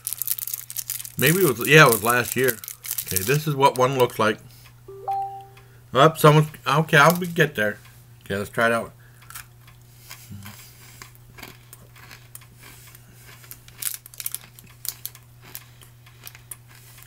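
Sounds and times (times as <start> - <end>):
person chewing crunchy candy: 0.0 - 3.4, 9.2 - 17.0.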